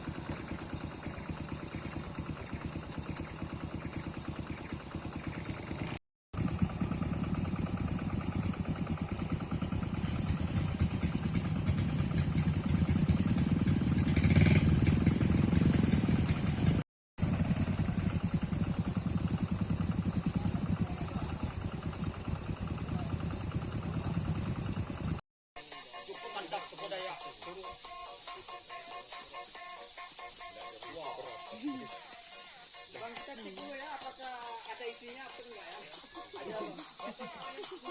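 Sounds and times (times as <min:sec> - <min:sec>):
engine running: 0:00.0 - 0:25.2
steady high whine: 0:06.4 - 0:26.0.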